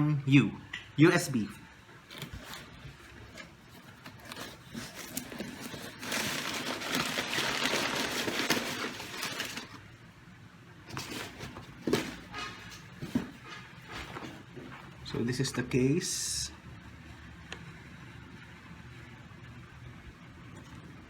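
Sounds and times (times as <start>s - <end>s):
packaging rustling and scraping: 2.0s - 9.8s, 10.9s - 15.0s.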